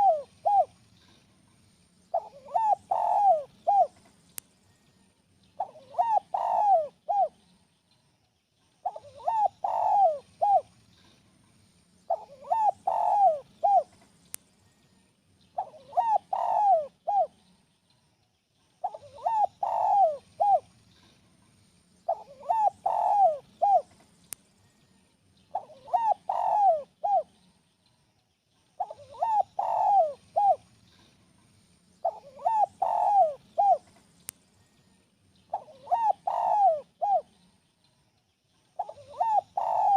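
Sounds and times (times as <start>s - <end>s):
dove cooing: 0.0s - 0.8s, 2.1s - 4.1s, 5.6s - 7.4s, 8.8s - 10.7s, 12.1s - 14.0s, 15.6s - 17.4s, 18.8s - 20.7s, 22.1s - 24.0s, 25.5s - 27.4s, 28.8s - 30.7s, 32.0s - 34.0s, 35.5s - 37.4s, 38.8s - 39.9s.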